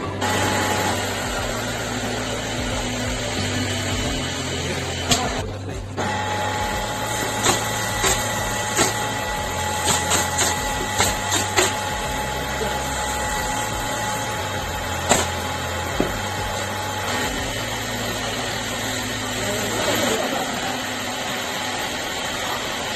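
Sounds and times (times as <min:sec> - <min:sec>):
small electric motor whining: 0:00.0 - 0:22.9.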